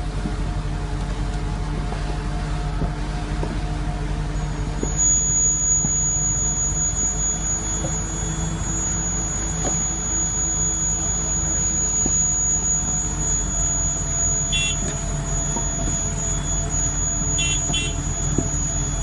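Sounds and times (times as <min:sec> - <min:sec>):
heavy machine engine droning: 0:00.0 - 0:19.0
electronic warning beeps: 0:04.4 - 0:19.0.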